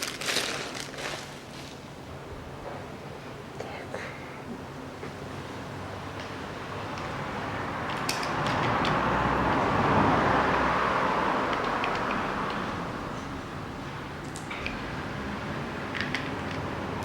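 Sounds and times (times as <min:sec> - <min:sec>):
vehicle passing by: 0:05.8 - 0:17.0.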